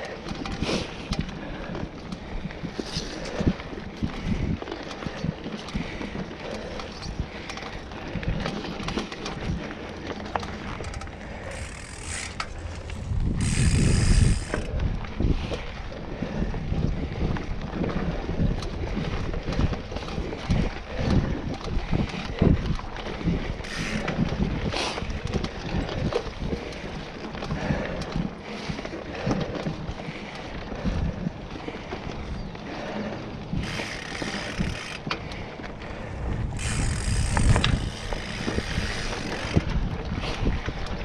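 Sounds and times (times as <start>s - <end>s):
bike knocking and rattling: 0.0s - 41.0s
tyre rumble: 35.6s - 39.7s.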